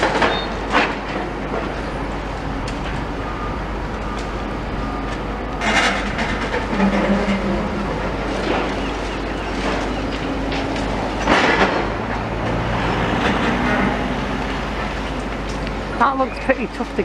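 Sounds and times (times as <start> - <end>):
excavator engine running: 0.0 - 17.0
crunching scraping masonry: 5.0 - 17.0.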